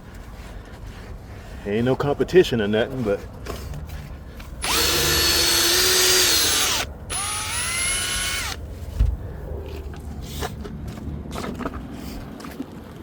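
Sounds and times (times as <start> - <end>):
power drill spinning scrub brush: 4.6 - 8.6.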